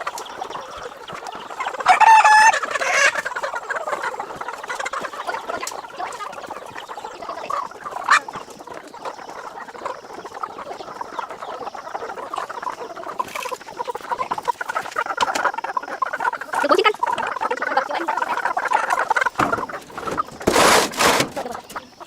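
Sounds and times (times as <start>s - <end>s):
chickens clucking: 0.0s - 22.0s
chicken rising call: 0.5s - 5.6s.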